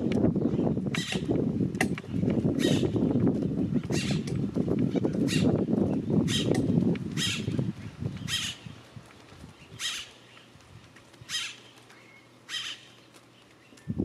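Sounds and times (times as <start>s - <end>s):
bird harsh calls: 0.5s - 1.3s, 2.1s - 4.3s, 4.9s - 7.6s, 8.2s - 8.8s, 9.6s - 10.6s, 11.2s - 13.9s.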